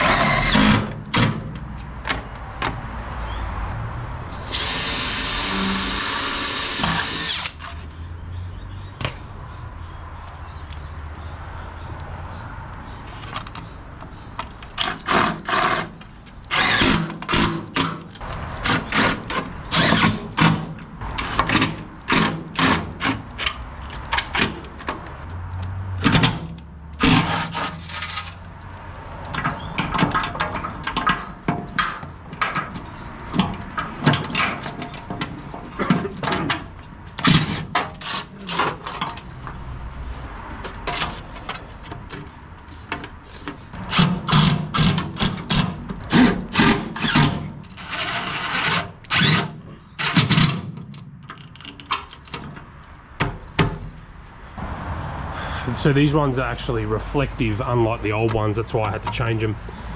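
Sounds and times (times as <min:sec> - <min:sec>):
power drill bursts: 0:04.4 - 0:07.6, 0:16.5 - 0:17.0
knocks and tool clatter: 0:29.2 - 0:39.6.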